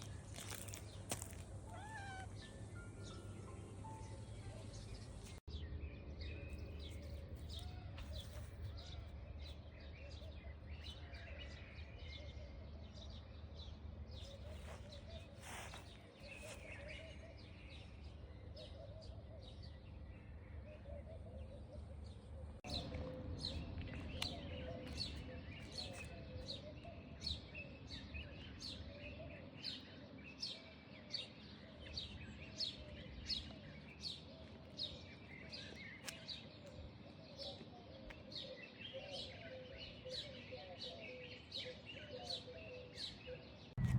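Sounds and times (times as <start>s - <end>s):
high falling bird chirp: 0.0s - 5.8s
birds chirping: 0.0s - 43.9s.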